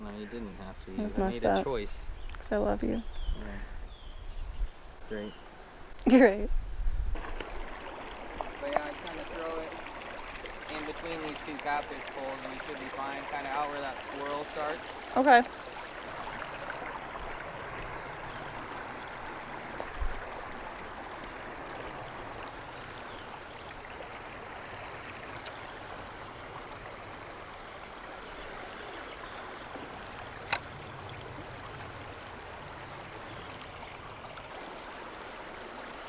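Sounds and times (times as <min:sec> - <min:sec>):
river water rushing: 0:07.2 - 0:36.0.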